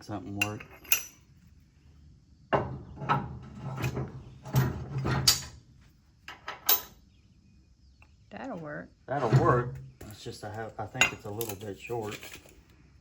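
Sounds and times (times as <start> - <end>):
metal parts scraping and clattering: 3.0 - 5.6, 11.1 - 12.6.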